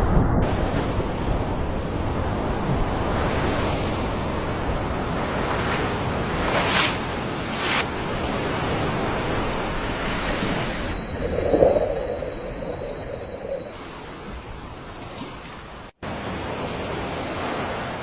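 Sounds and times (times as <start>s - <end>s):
rushing surf: 0.0s - 11.0s.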